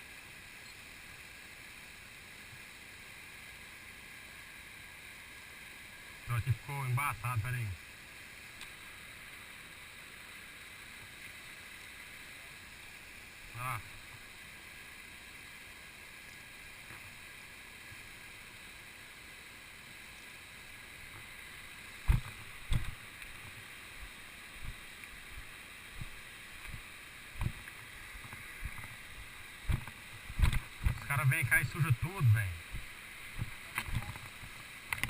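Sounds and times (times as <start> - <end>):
flowing water rushing: 0.0 - 35.0
low thumps and knocks: 22.1 - 23.0, 29.6 - 31.1.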